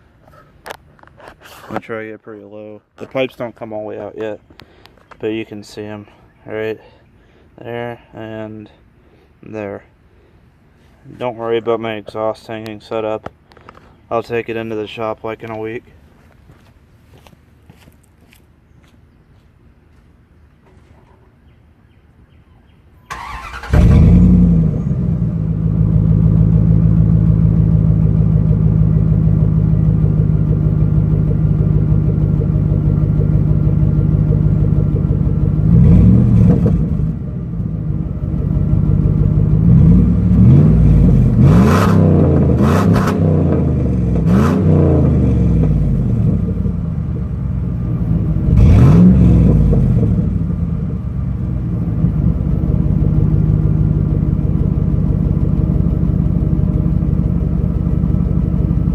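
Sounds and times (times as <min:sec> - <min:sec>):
pickup engine starting and idling: 0:23.0 - 0:41.5, 0:43.2 - 0:58.9
engine revving: 0:23.1 - 0:37.5, 0:38.6 - 0:47.3, 0:47.9 - 0:52.4.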